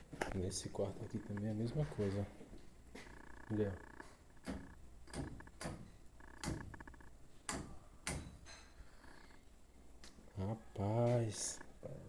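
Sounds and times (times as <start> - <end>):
electrical contactor clacking: 3.1 - 8.5.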